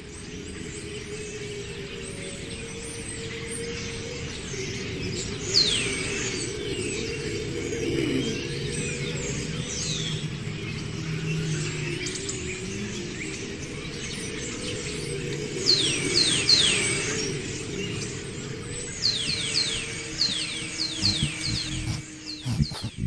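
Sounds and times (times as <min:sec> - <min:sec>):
low steady hum: 0:20.2 - 0:23.0.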